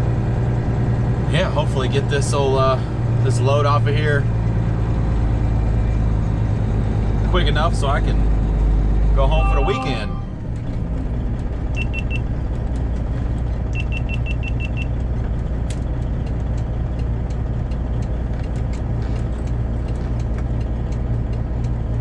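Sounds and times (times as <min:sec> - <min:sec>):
diesel truck engine drone: 0:00.0 - 0:22.0
short high beeps: 0:09.3 - 0:10.4.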